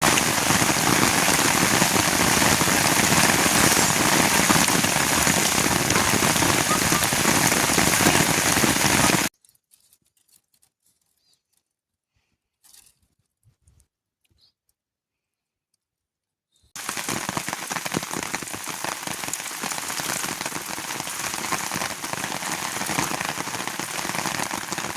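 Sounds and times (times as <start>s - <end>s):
rain falling: 0.0s - 9.3s, 16.8s - 24.9s.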